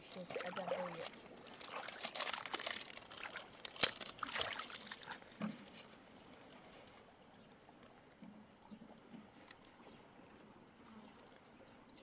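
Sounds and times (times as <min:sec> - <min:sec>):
water trickling over stones: 0:00.0 - 0:06.7.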